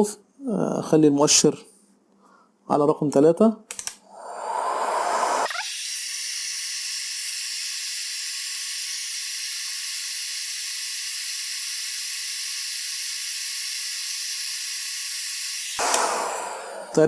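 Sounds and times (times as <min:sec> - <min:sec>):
heat gun air hiss: 0:04.2 - 0:17.0.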